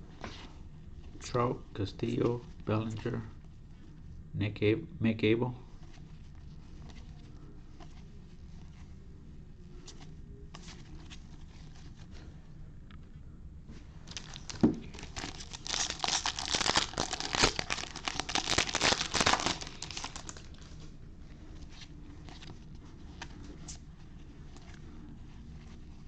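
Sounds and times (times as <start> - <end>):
wrapper tearing and crinkling: 14.1 - 20.8.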